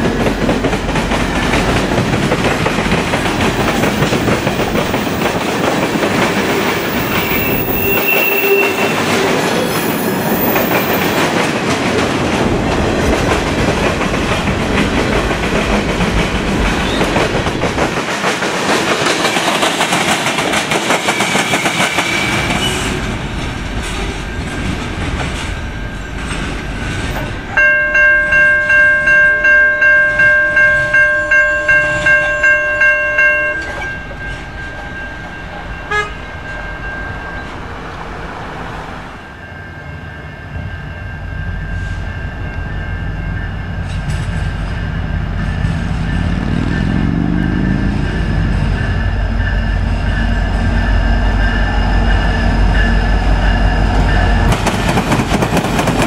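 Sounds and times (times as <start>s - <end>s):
railroad crossing bell ringing: 0.0s - 11.4s, 23.3s - 38.2s, 39.1s - 55.0s
train wheels clattering on rails: 0.0s - 29.2s, 41.5s - 56.0s.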